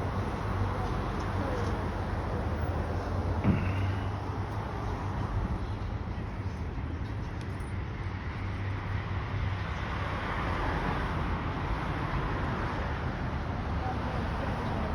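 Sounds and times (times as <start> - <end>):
cars passing: 8.0 - 14.9.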